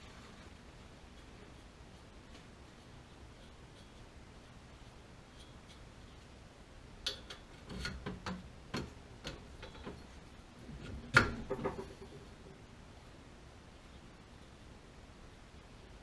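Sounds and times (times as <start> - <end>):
tools clicking and knocking: 7.0 - 10.1.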